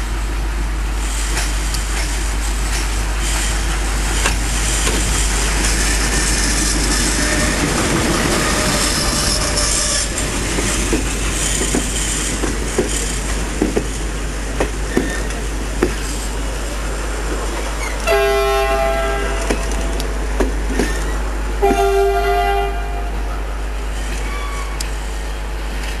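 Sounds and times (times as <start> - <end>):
train rumbling past: 0.0 - 26.0
wheels clicking over rail joints: 1.1 - 22.2
train horn blast: 6.7 - 10.3, 18.0 - 20.2, 21.6 - 23.7.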